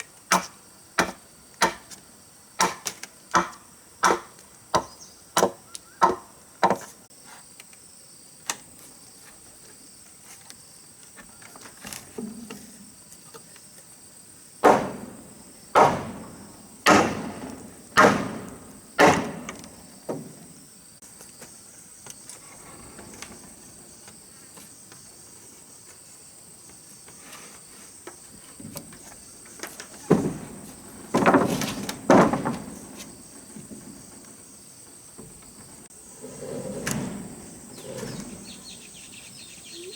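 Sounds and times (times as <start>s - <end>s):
insect drone: 3.5s - 39.9s
tool knocking on wood: 14.6s - 15.2s, 15.8s - 20.4s.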